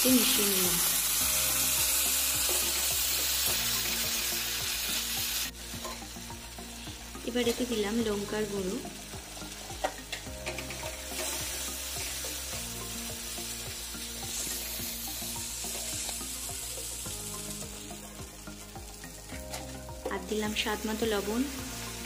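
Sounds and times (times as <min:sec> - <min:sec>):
masala sizzling in oil: 0:00.0 - 0:22.0
metal spatula scraping a pan: 0:09.4 - 0:12.2.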